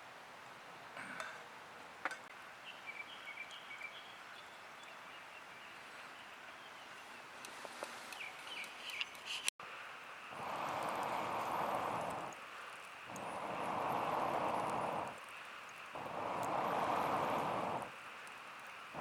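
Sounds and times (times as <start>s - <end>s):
small birds chirping: 2.6s - 7.3s, 8.1s - 9.5s, 10.4s - 19.0s
steady hiss: 7.4s - 19.0s.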